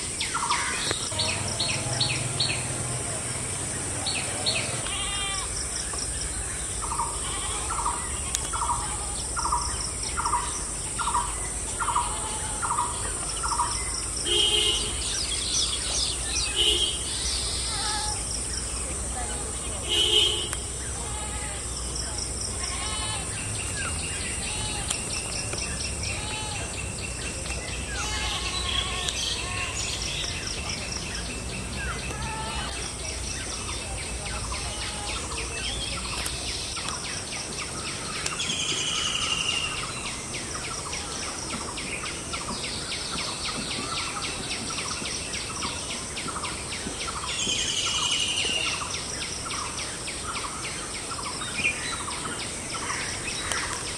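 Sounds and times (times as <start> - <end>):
birds chirping and calling: 0.0 - 53.9.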